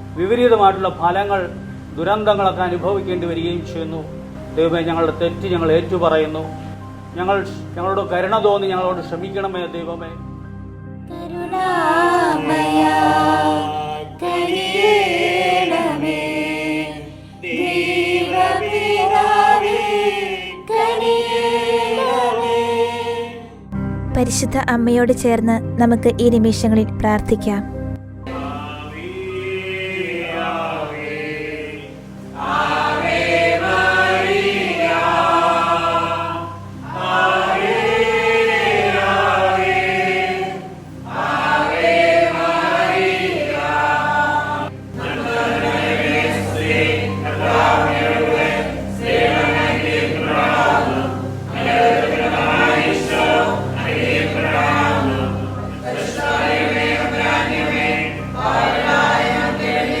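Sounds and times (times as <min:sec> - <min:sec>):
choir singing a hymn: 0:11.1 - 0:23.7, 0:28.2 - 1:00.0
low accompaniment: 0:23.7 - 1:00.0.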